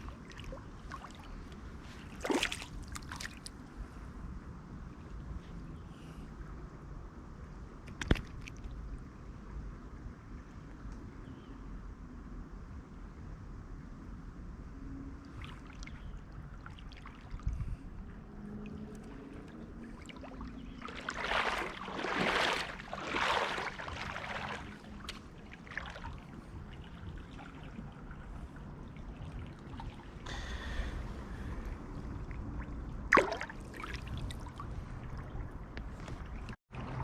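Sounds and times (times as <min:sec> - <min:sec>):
water splashing: 0:00.0 - 0:03.5, 0:18.5 - 0:37.0
creek water running: 0:18.6 - 0:37.0.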